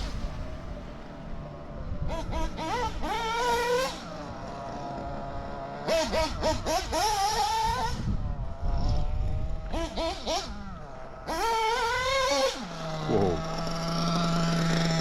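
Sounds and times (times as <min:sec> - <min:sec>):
nitro engine throttle blips: 0:00.0 - 0:15.0.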